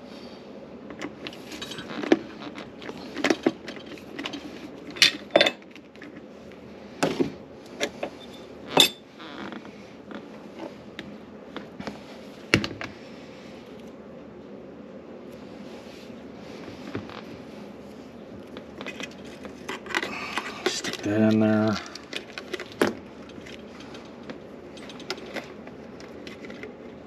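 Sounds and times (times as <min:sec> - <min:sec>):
metal tools clinking and knocking: 0:01.5 - 0:02.0, 0:03.8 - 0:05.6, 0:08.2 - 0:09.0, 0:24.7 - 0:25.5.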